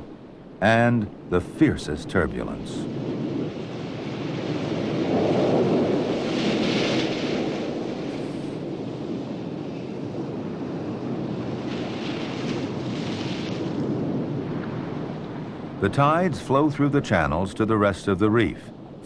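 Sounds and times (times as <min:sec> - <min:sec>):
surf rushing over reef: 0:00.0 - 0:19.0.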